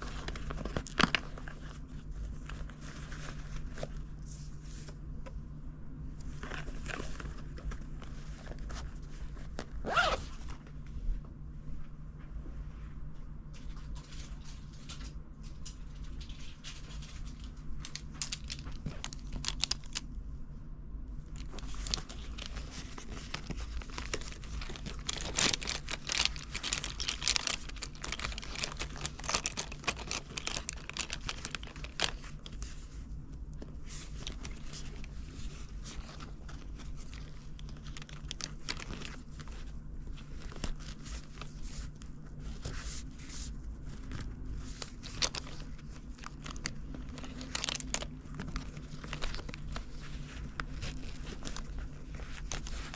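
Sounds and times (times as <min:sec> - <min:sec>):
packaging crinkling: 0:00.0 - 0:04.0, 0:16.0 - 0:20.2, 0:21.2 - 0:52.9.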